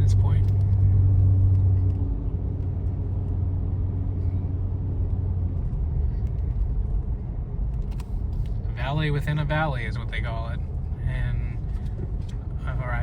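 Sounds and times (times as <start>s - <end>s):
low hum: 0.0s - 8.9s
car engine and tyre rumble: 0.0s - 13.0s.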